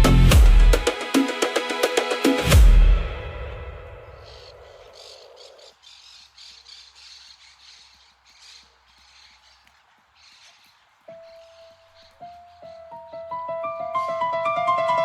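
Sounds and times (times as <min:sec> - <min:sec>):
faint birds chirping: 0:03.5 - 0:14.3.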